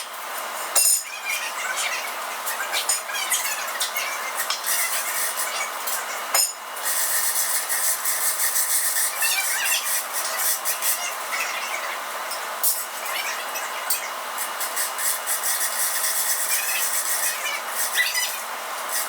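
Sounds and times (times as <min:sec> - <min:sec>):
electric arc welding crackle: 0:02.0 - 0:11.4, 0:12.0 - 0:19.0.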